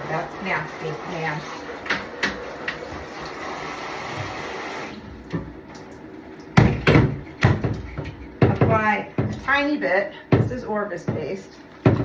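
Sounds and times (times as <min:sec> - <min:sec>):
tap water running into bathtub: 0:00.0 - 0:09.7, 0:10.4 - 0:12.0
loud knocks: 0:06.6 - 0:09.5.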